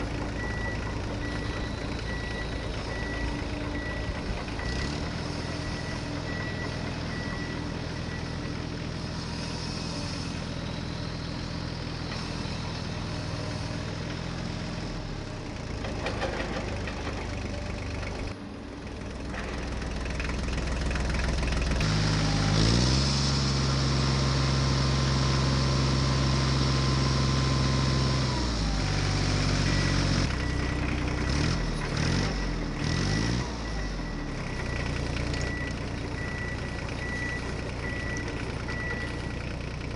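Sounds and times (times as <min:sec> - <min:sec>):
reversing beep: 0:00.1 - 0:09.9, 0:27.5 - 0:39.6.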